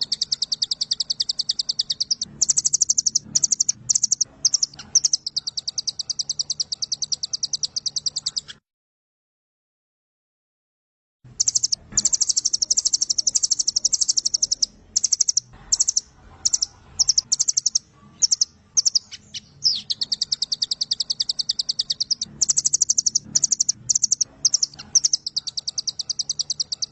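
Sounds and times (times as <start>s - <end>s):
bird singing fast trills: 0.0s - 8.6s, 11.3s - 26.9s.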